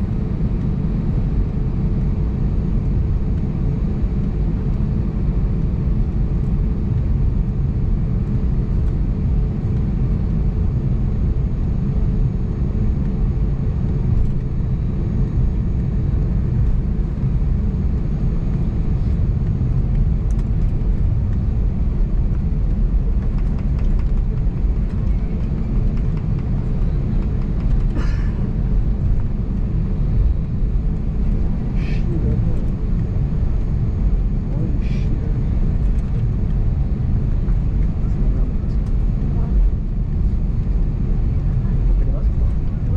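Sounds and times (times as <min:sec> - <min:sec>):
aircraft cabin engine rumble: 0:00.0 - 0:42.9.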